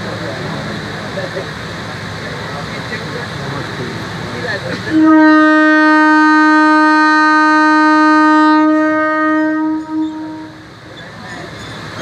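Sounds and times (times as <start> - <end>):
train horn blast: 4.8 - 10.8.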